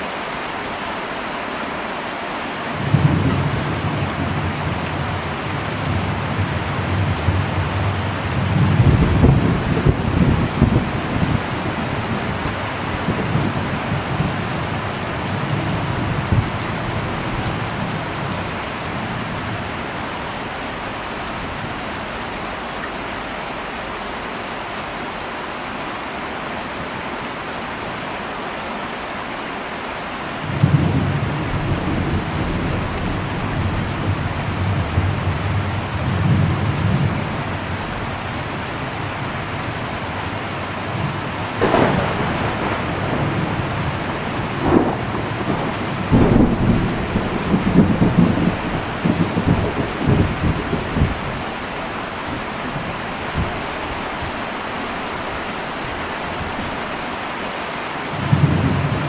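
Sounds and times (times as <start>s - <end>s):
heavy rain on a metal roof: 0.0s - 59.0s
thunder rumbling: 2.8s - 23.3s, 30.5s - 56.9s.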